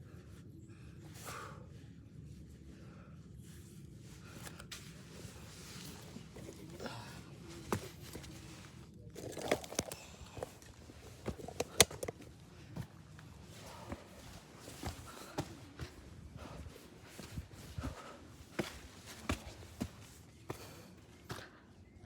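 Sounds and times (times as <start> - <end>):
footsteps on dirt and rock: 7.6 - 21.6.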